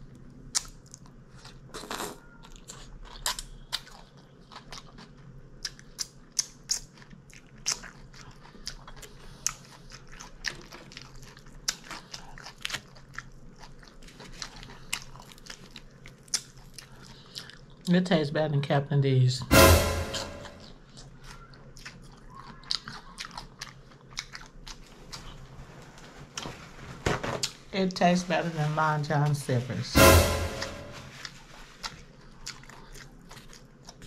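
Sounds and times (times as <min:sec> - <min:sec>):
person chewing food: 0:00.1 - 0:17.9, 0:20.8 - 0:25.7, 0:31.2 - 0:34.0.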